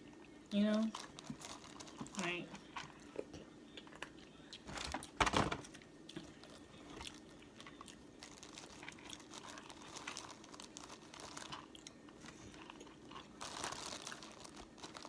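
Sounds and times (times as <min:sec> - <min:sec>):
chewing with wet clicks: 0:11.5 - 0:13.3.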